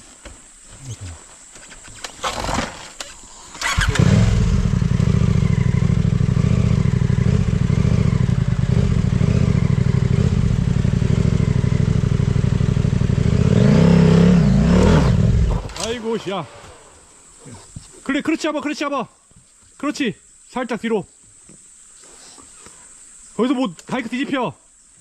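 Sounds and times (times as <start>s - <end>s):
motorcycle engine running: 3.6s - 15.8s.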